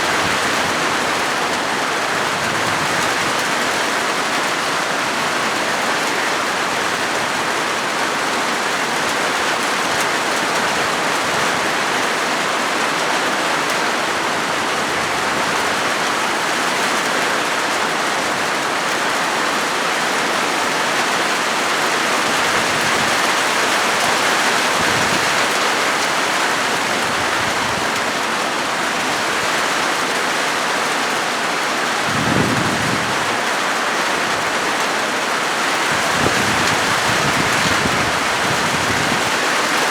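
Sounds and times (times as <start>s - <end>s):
rain on a metal roof: 0.0s - 39.9s.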